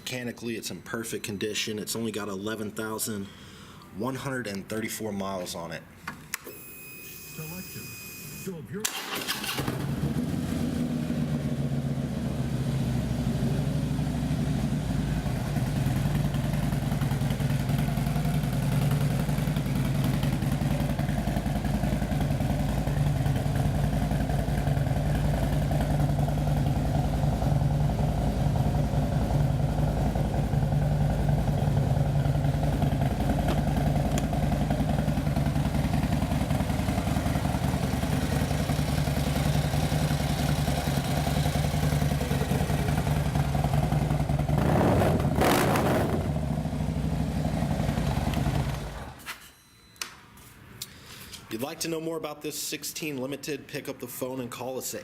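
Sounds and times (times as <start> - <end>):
motorcycle engine idling: 9.6 - 45.4, 46.1 - 49.2.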